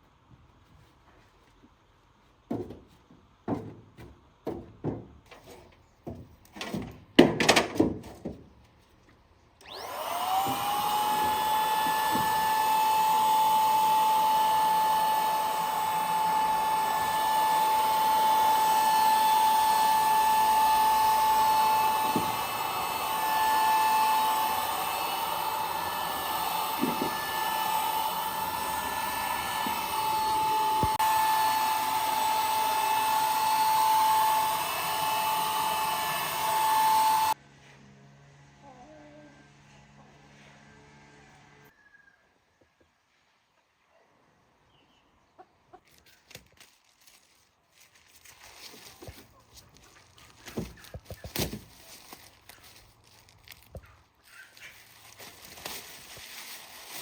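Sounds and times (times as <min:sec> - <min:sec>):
high-speed electric tool whining: 0:09.6 - 0:37.4.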